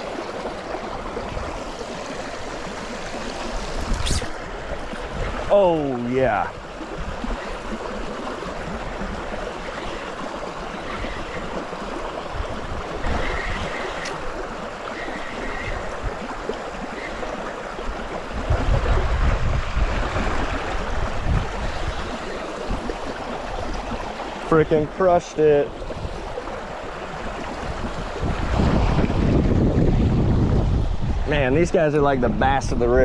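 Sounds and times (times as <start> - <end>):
river water rushing: 0.0 - 31.3.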